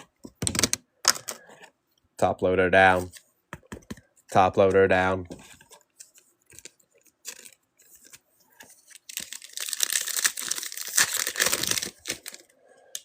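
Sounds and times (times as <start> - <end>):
foil wrapper tearing and crinkling: 8.8 - 12.5.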